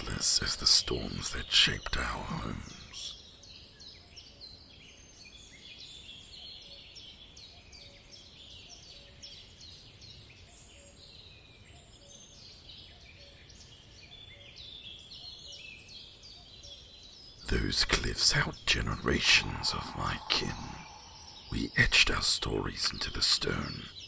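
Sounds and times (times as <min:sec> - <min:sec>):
soft background hiss: 0:17.5 - 0:24.0.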